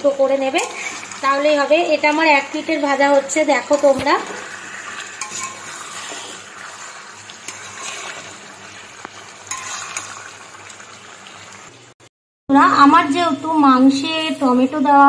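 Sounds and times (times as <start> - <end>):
chicken sizzling in hot oil: 0.0 - 12.1
spatula scraping pan: 0.5 - 2.2, 3.1 - 10.6.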